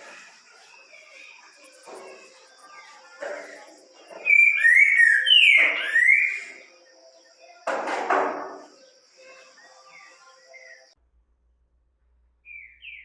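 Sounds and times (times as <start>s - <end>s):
faint chirps: 0.0s - 11.0s
bird singing whistled notes: 4.1s - 7.6s, 12.4s - 13.0s.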